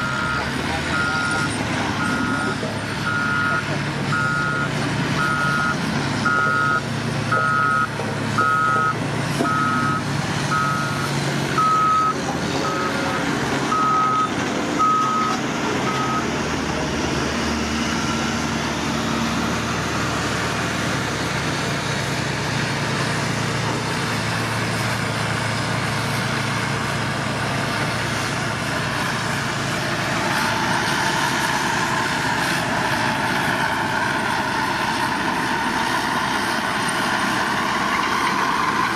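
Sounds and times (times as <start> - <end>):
reversing alarm beeping: 0.0 - 16.3
diesel engine running: 0.0 - 38.9.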